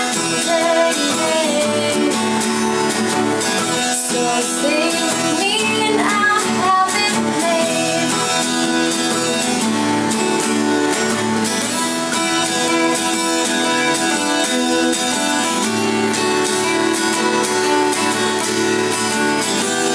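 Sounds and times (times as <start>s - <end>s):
acoustic guitar strumming: 0.0s - 19.9s.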